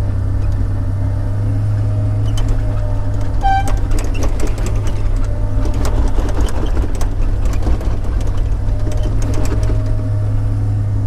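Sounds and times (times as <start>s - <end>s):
loader engine droning: 0.0s - 11.0s
logs knocking and clunking: 2.3s - 10.1s.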